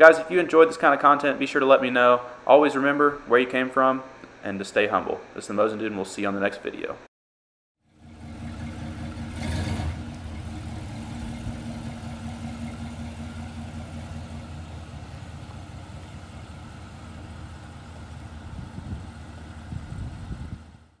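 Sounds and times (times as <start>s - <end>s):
car engine running: 7.8s - 21.0s.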